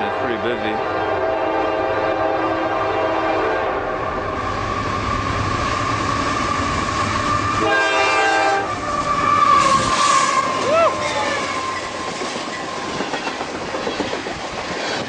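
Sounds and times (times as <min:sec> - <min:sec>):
freight train cars rumbling: 0:00.0 - 0:15.0
locomotive air horn: 0:00.8 - 0:03.9, 0:05.8 - 0:11.5.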